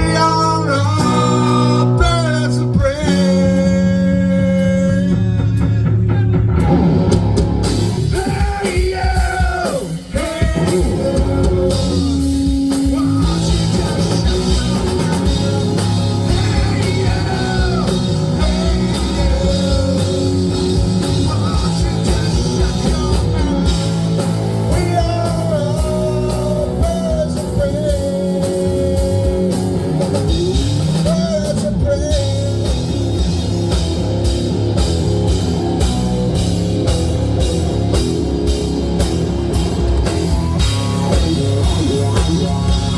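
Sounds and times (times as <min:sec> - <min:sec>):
person singing: 0:00.0 - 0:06.8, 0:08.0 - 0:33.0
drums: 0:00.0 - 0:42.9
guitar: 0:00.0 - 0:42.9.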